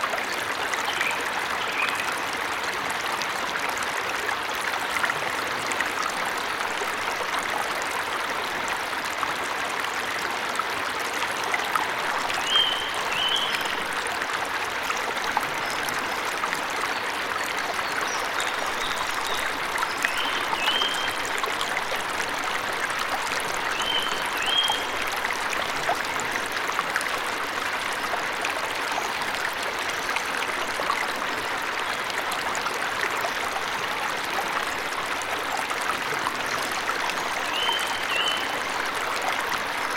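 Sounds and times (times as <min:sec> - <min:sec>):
songbird chirps: 0:12.3 - 0:14.0, 0:17.7 - 0:21.2, 0:23.7 - 0:25.0, 0:37.4 - 0:38.6.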